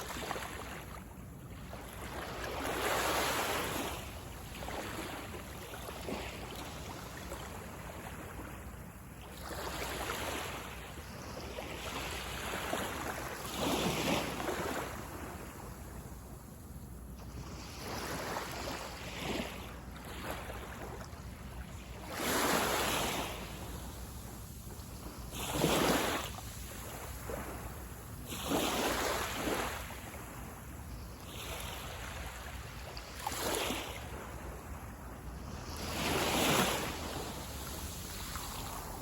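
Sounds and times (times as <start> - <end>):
low rumble of surf: 0.0 - 39.0
small waves washing up a beach: 0.0 - 39.0.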